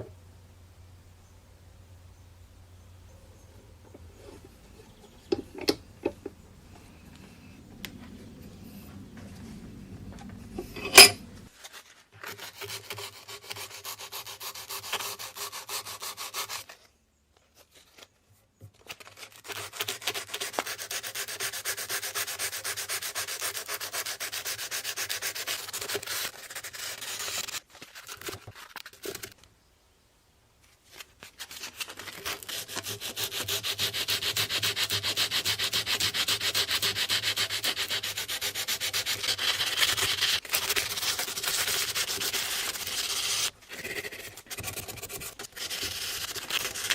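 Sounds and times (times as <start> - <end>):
sanding metal blade by hand: 10.7 - 11.2, 12.4 - 16.7, 20.0 - 27.6, 31.9 - 46.9.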